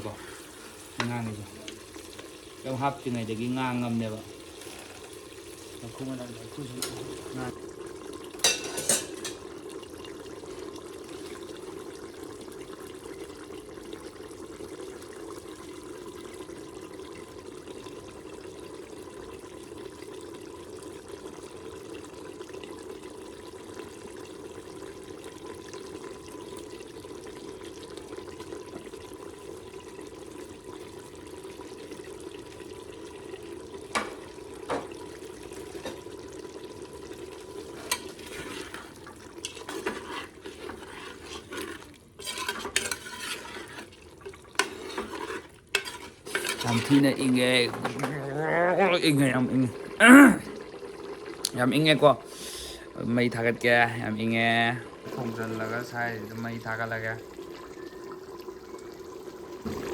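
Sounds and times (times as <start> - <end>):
pot bubbling on stove: 0.0 - 59.9.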